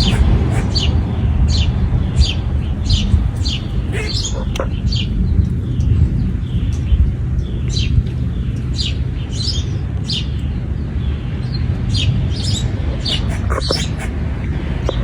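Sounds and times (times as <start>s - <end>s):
small bird chirping: 0.0s - 0.9s, 1.6s - 5.2s, 12.0s - 14.1s.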